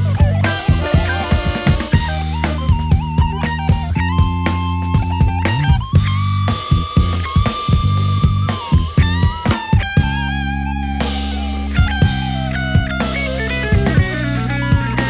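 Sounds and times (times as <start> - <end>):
bass line: 0.0 - 15.0
drums keeping a beat: 0.0 - 15.0.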